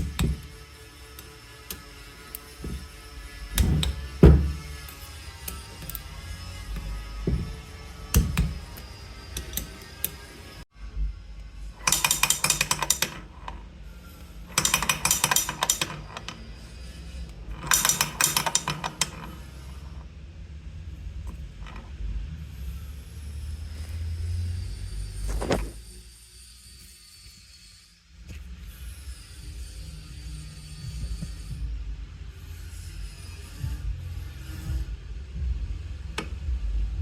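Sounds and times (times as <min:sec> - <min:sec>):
quiet background music: 0:00.0 - 0:25.4, 0:27.8 - 0:37.0
hand tools clicking on metal: 0:06.7 - 0:10.3, 0:11.8 - 0:13.6, 0:14.5 - 0:16.4, 0:17.3 - 0:20.0.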